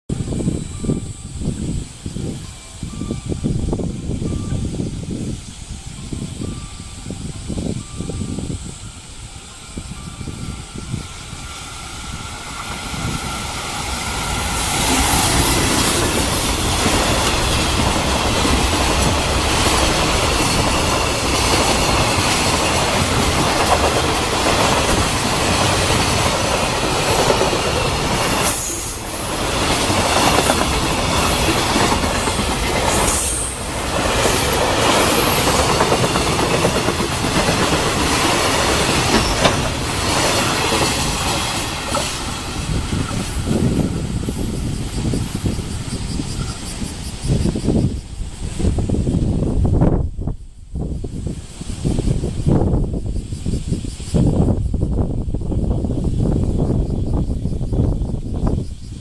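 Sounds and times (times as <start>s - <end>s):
freight train passing: 0.1s - 59.0s
wheels rolling on rails: 9.0s - 47.9s.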